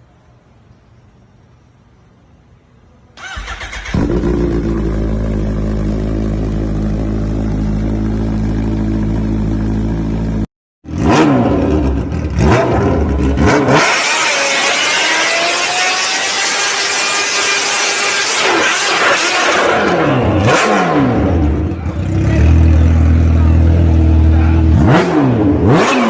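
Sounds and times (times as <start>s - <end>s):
motorcycle engine idling: 3.2s - 10.4s
engine revving in blips: 10.8s - 26.0s.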